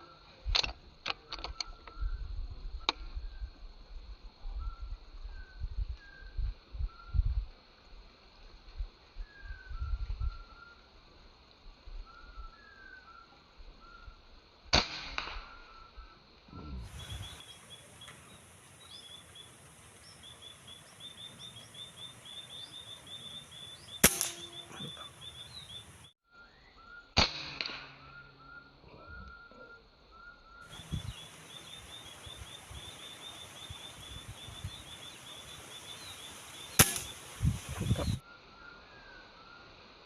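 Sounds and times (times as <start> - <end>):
small birds chirping: 15.8 - 27.0, 28.2 - 38.3
air rifle shots: 24.0 - 24.8, 27.2 - 28.0, 36.8 - 37.3.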